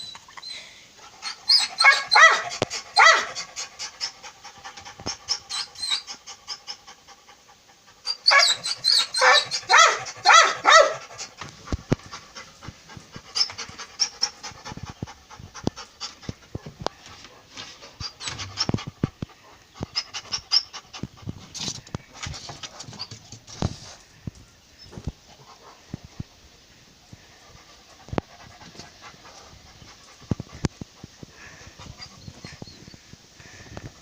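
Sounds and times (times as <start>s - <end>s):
pet animal high cries: 1.2s - 3.4s, 8.1s - 11.0s.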